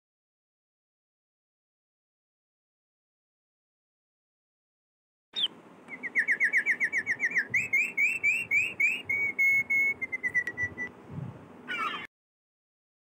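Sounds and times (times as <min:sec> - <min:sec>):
bird singing: 0:05.4 - 0:11.0, 0:11.7 - 0:12.1.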